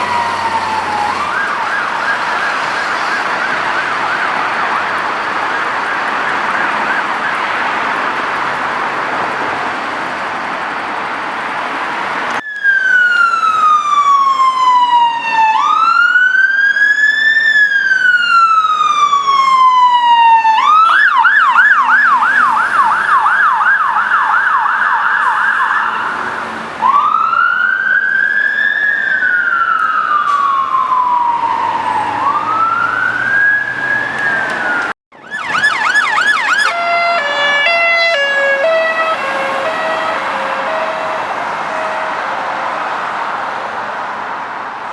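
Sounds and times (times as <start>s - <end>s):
rough siren-like sound: 0.0s - 7.8s, 12.4s - 43.8s
fire engine siren wailing: 0.0s - 9.4s, 12.3s - 44.9s
siren fast yelp: 18.3s - 42.6s.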